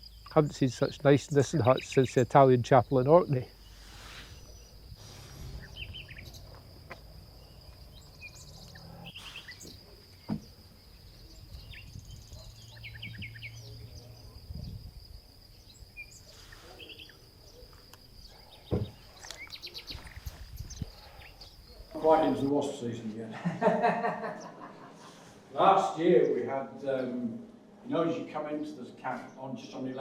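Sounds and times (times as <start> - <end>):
small birds chirping: 0.0 - 22.5
low wind rumble: 3.4 - 16.2, 19.9 - 22.5.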